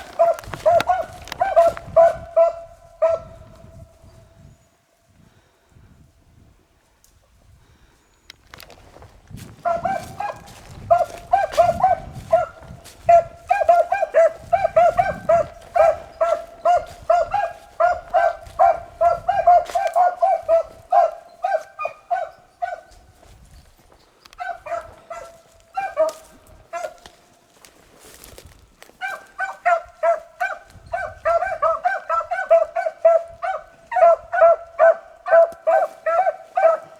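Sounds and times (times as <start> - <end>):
hounds baying: 0.0 - 4.1, 9.4 - 23.3, 24.3 - 27.3, 28.8 - 36.9.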